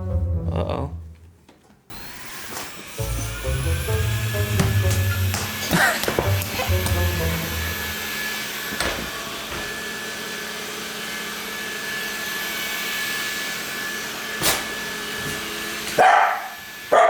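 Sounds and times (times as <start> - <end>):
robot vacuum whirring: 1.9 - 17.0.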